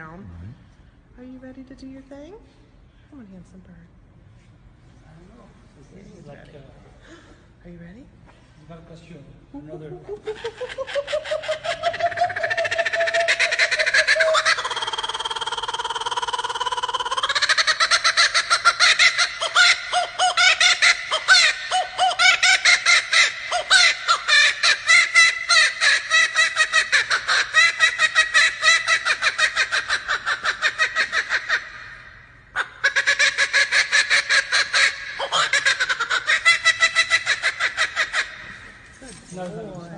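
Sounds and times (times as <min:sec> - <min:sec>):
kookaburra laughing call: 0:10.0 - 0:38.9.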